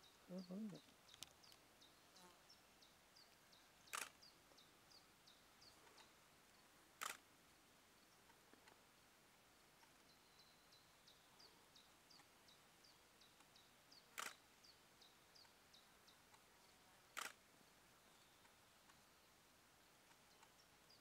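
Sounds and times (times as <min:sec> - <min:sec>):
sharp clicks: 0:03.9 - 0:04.2, 0:07.0 - 0:07.2, 0:14.2 - 0:14.4, 0:17.2 - 0:17.4.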